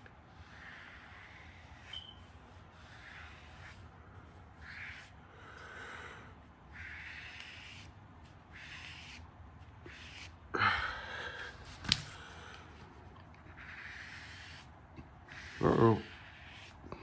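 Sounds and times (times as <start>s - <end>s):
marker scratching on paper: 0.0s - 5.2s, 6.7s - 10.4s, 12.8s - 16.9s.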